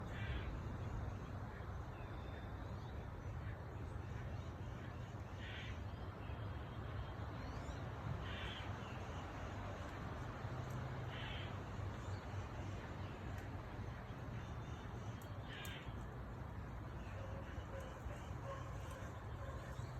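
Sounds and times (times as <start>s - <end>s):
crow cawing: 11.1s - 11.7s, 15.4s - 16.0s.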